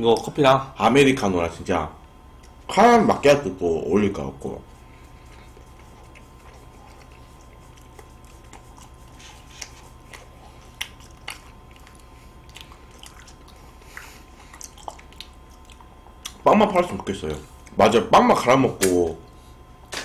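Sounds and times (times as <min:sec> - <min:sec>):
biting and chewing: 0:04.9 - 0:17.8
small crunches and mouth clicks: 0:04.9 - 0:17.8.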